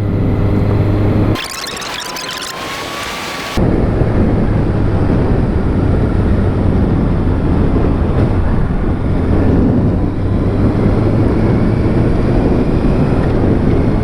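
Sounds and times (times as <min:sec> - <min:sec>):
wind noise on microphone: 0:03.3 - 0:14.0
motorcycle engine cruising: 0:05.0 - 0:14.0.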